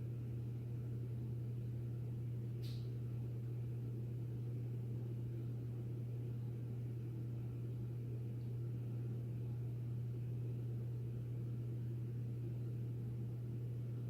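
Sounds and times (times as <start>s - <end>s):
ceiling fan running: 0.0s - 14.0s.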